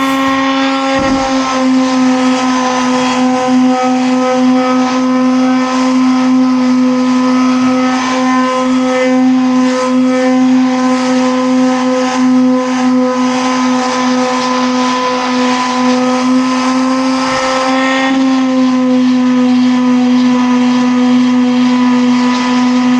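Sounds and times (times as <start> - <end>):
motor humming: 0.0 - 0.4.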